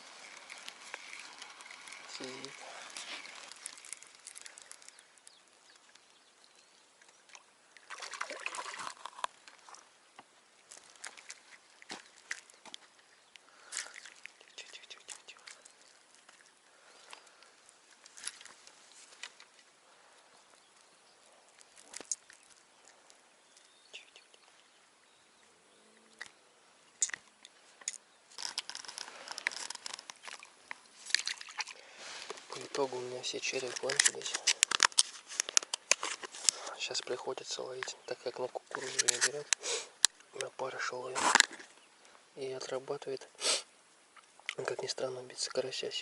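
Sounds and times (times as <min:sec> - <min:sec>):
crinkling rustle: 0:00.0 - 0:07.3, 0:10.6 - 0:23.8, 0:27.0 - 0:43.2
fish splashing in water: 0:00.0 - 0:09.9, 0:13.5 - 0:14.6, 0:30.1 - 0:32.4
faint clicks: 0:00.2 - 0:07.2.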